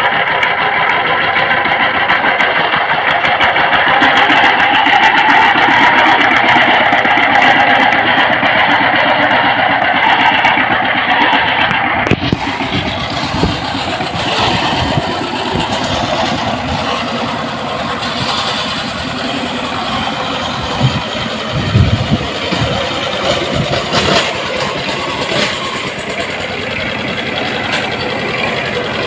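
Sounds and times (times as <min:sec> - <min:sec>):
power tiller engine running: 0:00.0 - 0:29.0
low thumps: 0:19.7 - 0:24.2.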